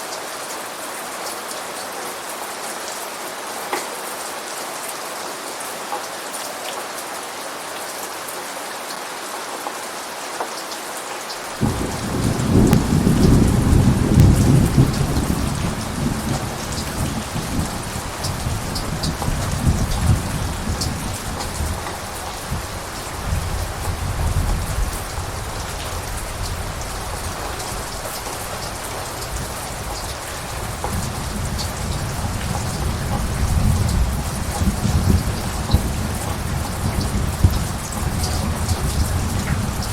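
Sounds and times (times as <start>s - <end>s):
heavy rain: 0.0s - 39.9s
thunder rumbling: 11.6s - 39.9s.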